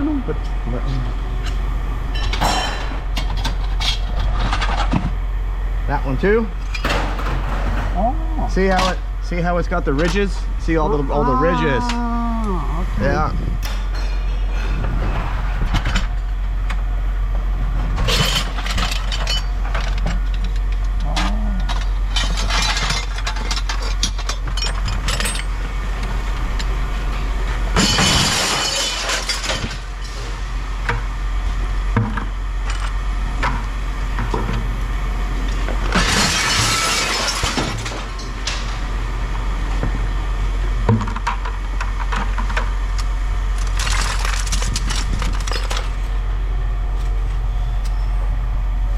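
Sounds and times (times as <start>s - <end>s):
low hum: 0.0s - 48.9s
metal rattling crashes: 2.1s - 5.2s, 6.2s - 9.4s, 27.7s - 30.4s, 35.7s - 38.8s, 43.6s - 46.4s.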